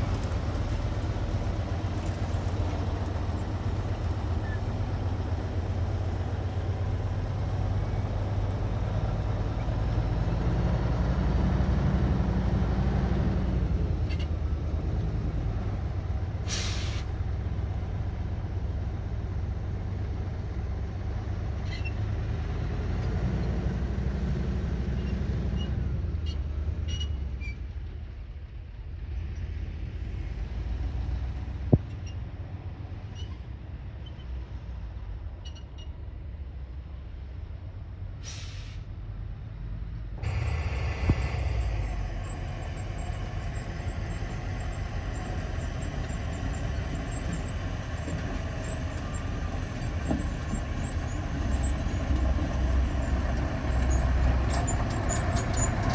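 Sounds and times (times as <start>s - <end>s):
diesel engine under load: 0.0s - 55.9s
air hiss: 40.2s - 42.2s.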